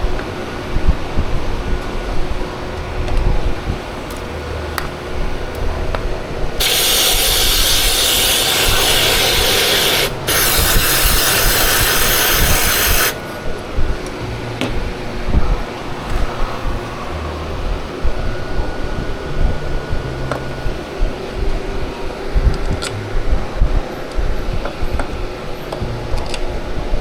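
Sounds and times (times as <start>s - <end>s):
steady low hum: 0.0s - 27.0s
aerosol can spraying: 6.6s - 13.2s.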